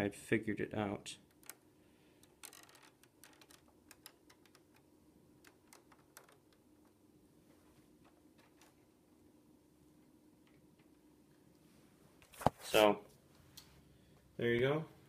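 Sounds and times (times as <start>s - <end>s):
plastic parts clicking: 1.2s - 7.0s
plastic parts rattling: 1.2s - 7.0s.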